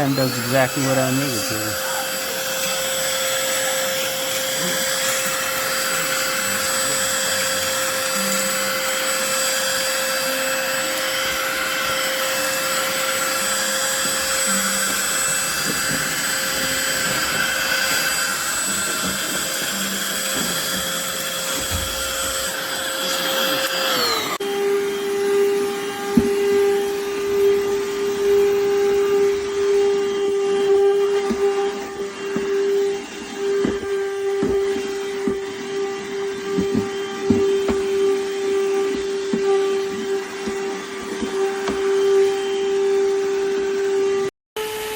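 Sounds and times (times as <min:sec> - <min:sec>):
handheld vacuum running: 0:00.0 - 0:44.9.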